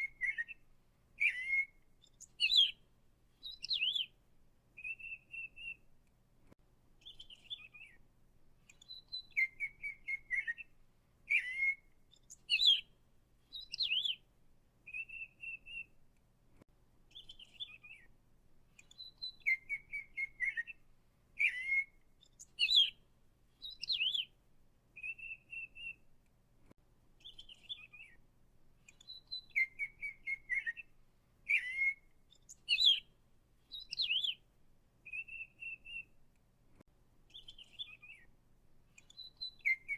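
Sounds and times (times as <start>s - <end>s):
bird chirps and whistles: 0.0s - 0.6s, 1.2s - 2.8s, 3.4s - 4.1s, 4.8s - 5.8s, 7.0s - 8.0s, 8.7s - 10.7s, 11.3s - 12.9s, 13.5s - 14.2s, 14.9s - 15.9s, 17.1s - 18.1s, 18.9s - 20.8s, 21.4s - 23.0s, 23.6s - 24.3s, 25.0s - 26.0s, 27.2s - 28.2s, 28.9s - 30.9s, 31.5s - 33.1s, 33.7s - 34.4s, 35.0s - 36.1s, 37.3s - 38.3s, 39.0s - 39.9s.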